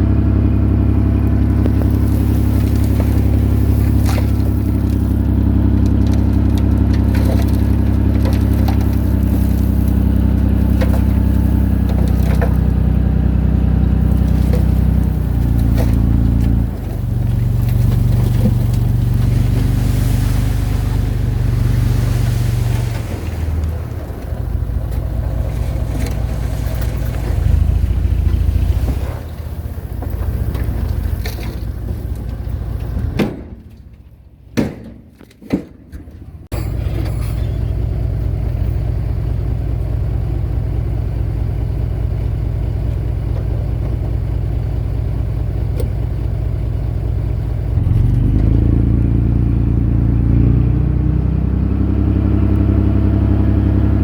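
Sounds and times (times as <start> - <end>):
heavy machinery diesel engine: 0.0 - 34.4, 36.1 - 54.0.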